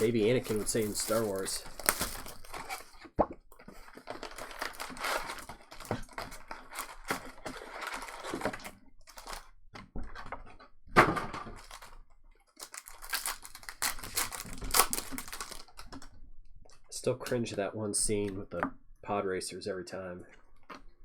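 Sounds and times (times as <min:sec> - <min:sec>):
cards clicking and rustling: 0:00.0 - 0:02.9, 0:12.6 - 0:16.0
card wrappers crinkling and tearing: 0:00.0 - 0:03.1, 0:03.8 - 0:09.5, 0:12.6 - 0:15.9.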